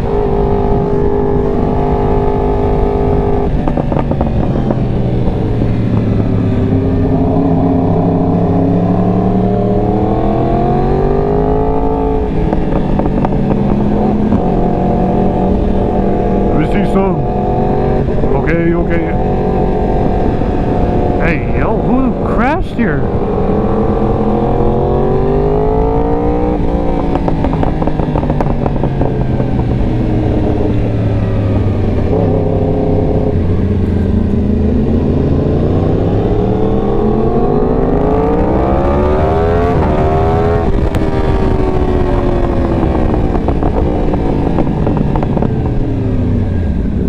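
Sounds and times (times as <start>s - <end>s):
motorcycle engine revving: 0.0s - 47.0s
wind rush: 0.0s - 47.0s.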